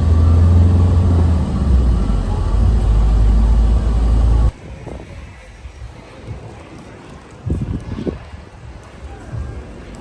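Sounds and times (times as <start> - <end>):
vehicle engine rumble and road noise: 0.0 - 4.7.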